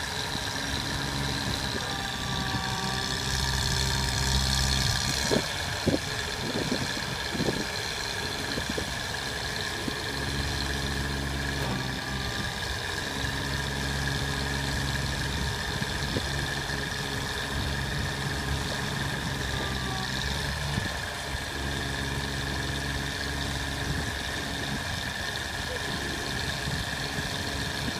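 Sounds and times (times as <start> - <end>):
truck engine idling: 0.0 - 27.9.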